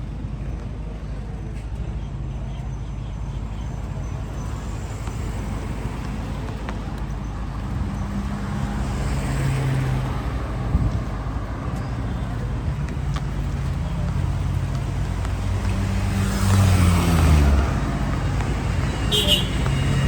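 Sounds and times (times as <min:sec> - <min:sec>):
traffic engines humming: 0:00.0 - 0:20.0
vehicle passing close: 0:07.6 - 0:20.0.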